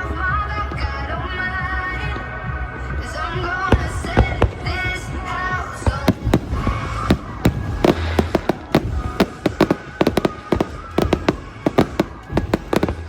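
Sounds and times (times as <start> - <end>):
fireworks bangs and crackles: 3.0 - 13.0.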